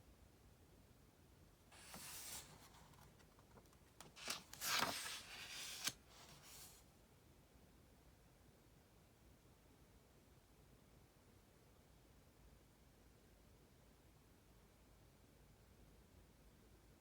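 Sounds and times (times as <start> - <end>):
book page turning: 1.8 - 6.8.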